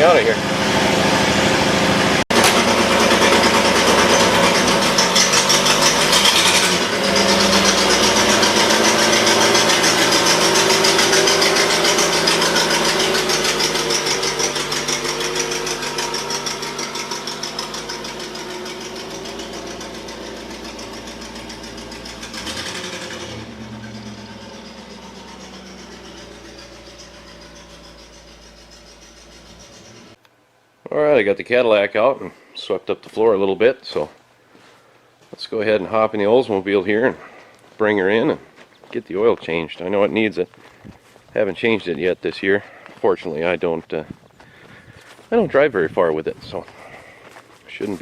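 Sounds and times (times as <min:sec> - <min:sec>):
car engine running: 0:00.0 - 0:30.2.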